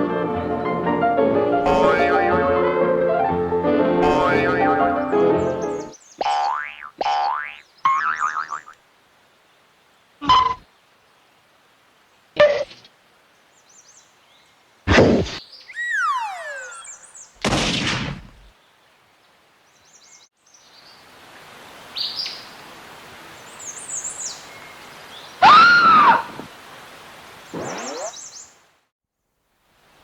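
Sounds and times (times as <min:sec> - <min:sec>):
outdoor background: 0:00.0 - 0:30.0
rising and falling boing: 0:01.6 - 0:02.5, 0:04.0 - 0:05.0, 0:14.9 - 0:17.0
cartoon hits: 0:10.2 - 0:10.6, 0:14.9 - 0:18.4
short bird chirps: 0:15.4 - 0:17.4, 0:27.5 - 0:28.5
falling whistle: 0:15.7 - 0:17.1.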